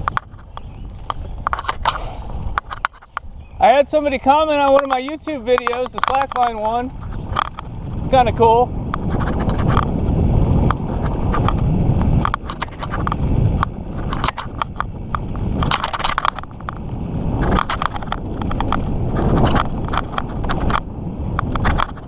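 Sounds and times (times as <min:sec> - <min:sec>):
bike clicks and rattles: 0:00.0 - 0:22.0
rumble of bike tyres and air: 0:00.0 - 0:22.0.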